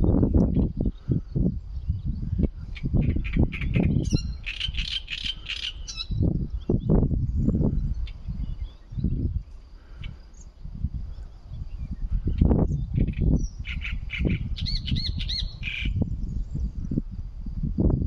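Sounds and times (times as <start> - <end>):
songbird calling: 0.0 - 16.8.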